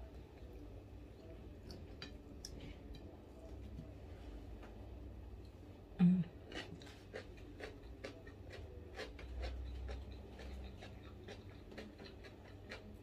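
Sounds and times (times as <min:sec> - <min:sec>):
person chewing crunchy food: 0:06.4 - 0:13.0.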